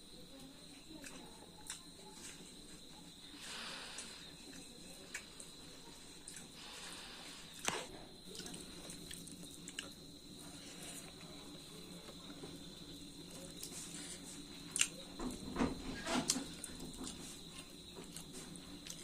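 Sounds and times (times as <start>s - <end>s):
person chewing and biting: 14.7s - 15.0s.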